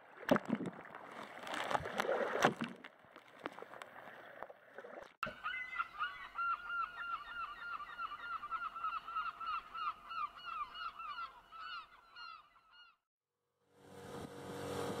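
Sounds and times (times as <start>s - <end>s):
bird calling squeaky notes: 5.3s - 13.0s.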